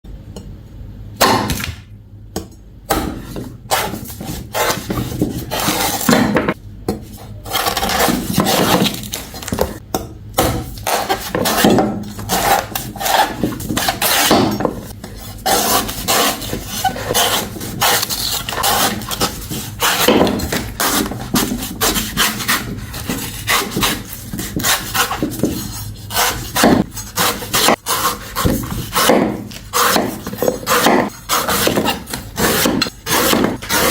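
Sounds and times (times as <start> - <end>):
scraping on a woody surface: 10.9 - 33.9.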